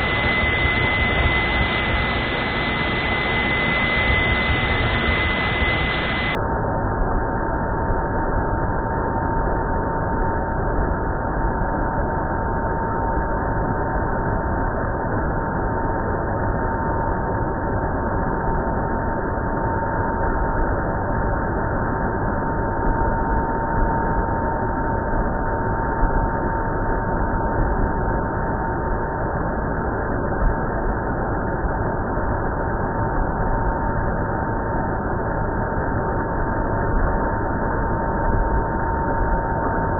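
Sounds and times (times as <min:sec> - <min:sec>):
thin high tone: 0:00.0 - 0:06.4.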